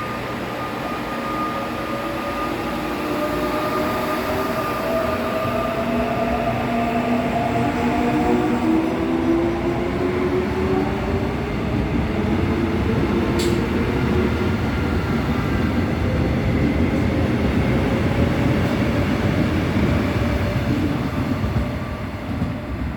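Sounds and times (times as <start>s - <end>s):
sharp click: 13.4s - 13.6s.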